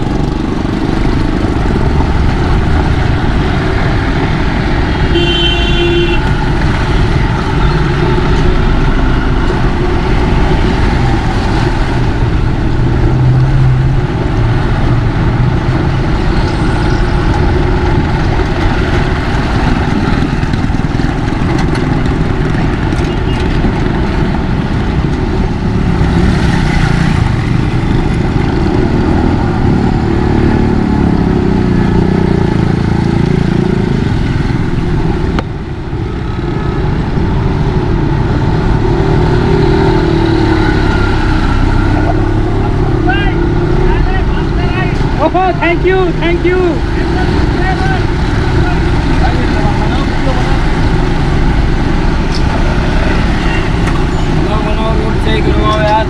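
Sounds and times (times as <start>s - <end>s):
motorcycle engine running: 0.0s - 56.0s
road and traffic noise: 0.0s - 56.0s
vehicle horn toot: 5.1s - 6.5s.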